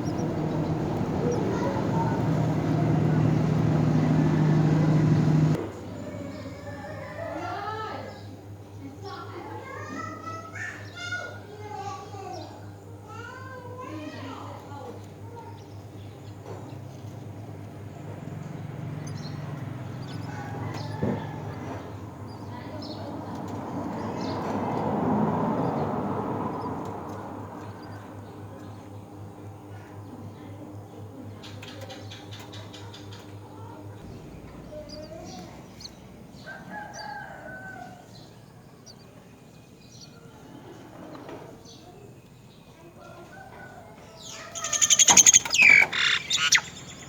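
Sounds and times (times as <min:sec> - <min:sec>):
birds chirping: 0:00.0 - 0:05.6, 0:13.8 - 0:30.1, 0:30.7 - 0:40.5, 0:43.3 - 0:47.0
drawn-out bird call: 0:00.0 - 0:05.6, 0:17.5 - 0:23.1, 0:34.0 - 0:39.0, 0:43.6 - 0:47.0
low engine hum: 0:00.0 - 0:06.3, 0:15.7 - 0:31.4, 0:32.2 - 0:38.2, 0:44.3 - 0:47.0
low pulsing hum: 0:34.0 - 0:36.4
faint bird chirps: 0:43.3 - 0:47.0.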